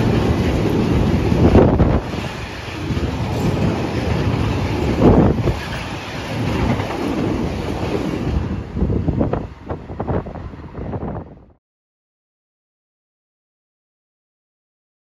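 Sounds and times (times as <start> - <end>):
train passing rumble: 0.0 - 11.6
wind buffeting microphone: 0.0 - 11.6.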